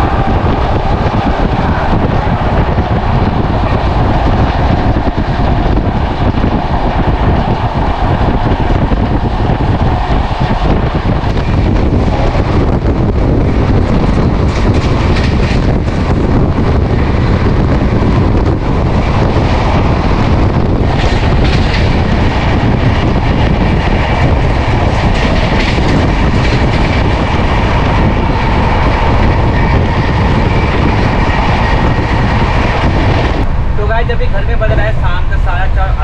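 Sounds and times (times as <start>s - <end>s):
passing trains: 0.0s - 36.0s
rail noise: 0.0s - 36.0s
wind rushing at train window: 0.0s - 36.0s.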